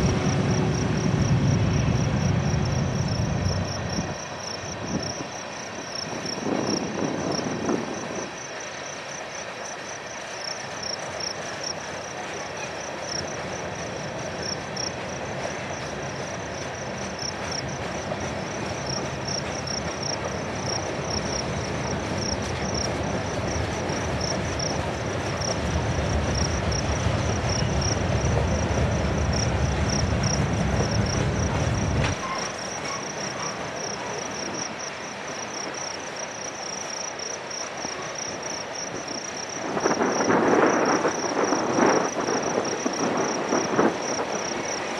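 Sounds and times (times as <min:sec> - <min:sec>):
steel wheels rumbling on rail: 0:00.0 - 0:44.9
insect chirping: 0:00.7 - 0:11.8, 0:12.4 - 0:17.7, 0:18.7 - 0:22.8, 0:26.4 - 0:28.7, 0:32.6 - 0:44.9.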